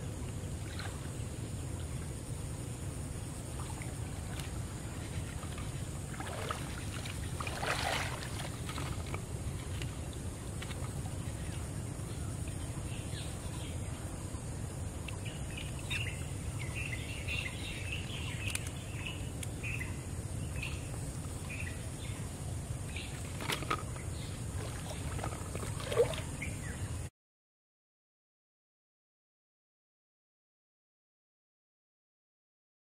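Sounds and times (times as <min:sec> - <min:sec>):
low background hum: 0:00.0 - 0:27.1
birds chirping: 0:10.2 - 0:27.0.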